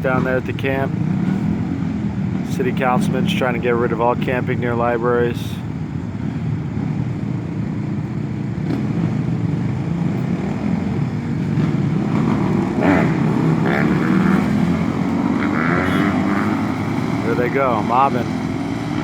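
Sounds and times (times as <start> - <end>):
dirt bikes and atvs riding past: 0.0 - 19.0
engines revving: 0.0 - 19.0.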